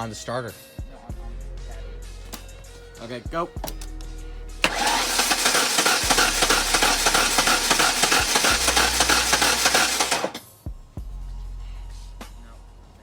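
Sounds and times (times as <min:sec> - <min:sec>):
truck engine cranking on starter: 0:04.6 - 0:10.4.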